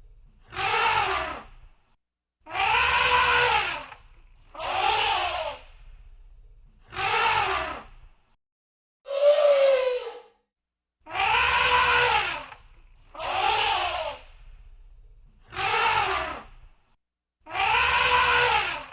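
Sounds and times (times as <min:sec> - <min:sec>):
elephant trumpeting: 0:00.5 - 0:01.4, 0:02.5 - 0:03.9, 0:11.1 - 0:12.6, 0:17.5 - 0:18.9.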